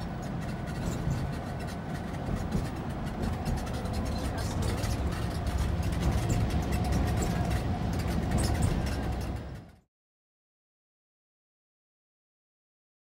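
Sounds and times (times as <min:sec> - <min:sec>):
engine and road rumble: 0:00.0 - 0:09.9.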